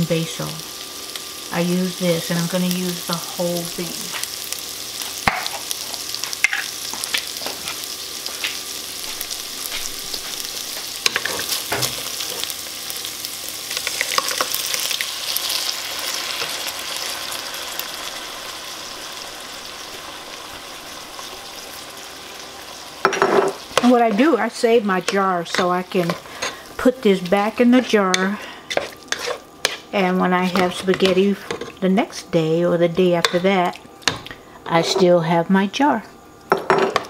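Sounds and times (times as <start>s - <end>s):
sausage sizzling in a pot: 0.0s - 37.0s
spatula scraping pan: 23.1s - 31.8s.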